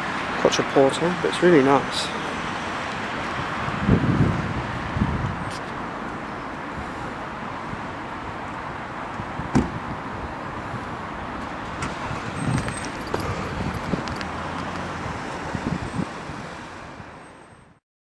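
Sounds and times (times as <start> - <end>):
street traffic: 0.0 - 17.8
low rumbles: 12.2 - 16.1.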